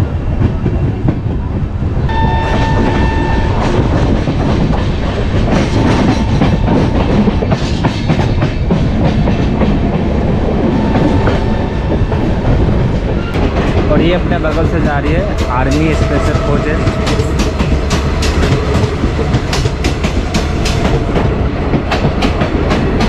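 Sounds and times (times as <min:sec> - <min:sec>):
train wheels clattering on rails: 0:00.1 - 0:23.0
high steady tone: 0:02.1 - 0:04.1.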